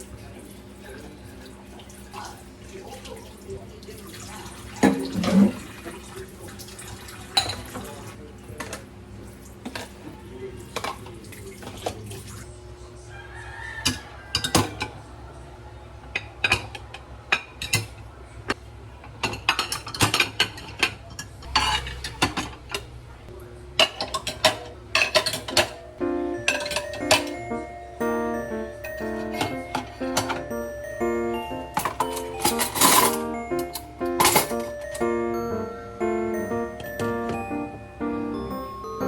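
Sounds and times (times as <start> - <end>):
dishes and cutlery clattering: 4.8 - 5.7, 19.2 - 22.8, 23.8 - 25.8, 26.4 - 27.5, 31.8 - 35.0.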